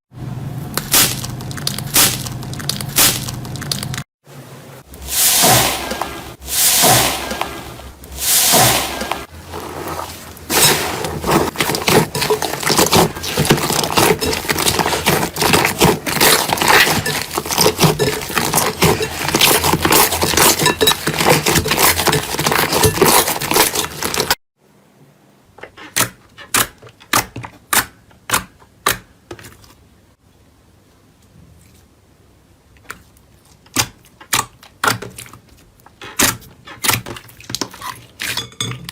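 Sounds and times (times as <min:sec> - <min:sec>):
sharp clicks and pops: 0:00.8 - 0:04.0
slime crackling and popping: 0:10.4 - 0:20.6.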